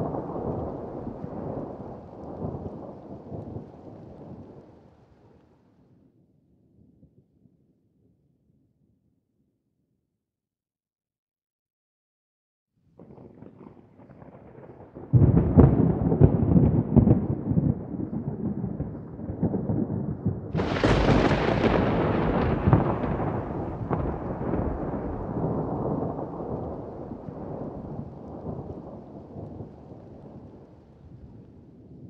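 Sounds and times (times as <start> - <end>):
thunder rumbling: 0.0 - 5.2, 13.0 - 32.0
thunder crack: 13.1 - 30.7.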